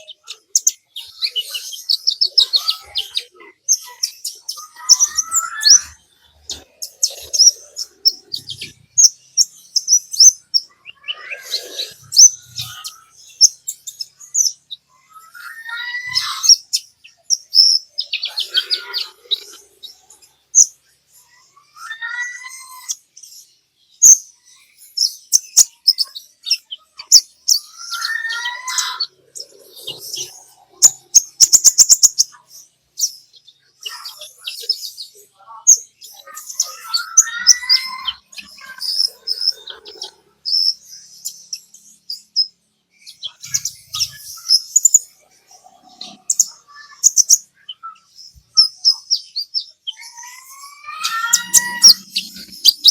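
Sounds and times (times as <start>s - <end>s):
bird warbled phrase: 0.0s - 8.9s, 10.3s - 13.2s, 14.9s - 16.6s, 17.6s - 20.3s, 21.3s - 23.0s, 27.6s - 32.5s, 33.7s - 40.4s, 43.2s - 49.1s, 49.9s - 52.9s
songbird chattering twitters: 24.0s - 52.9s.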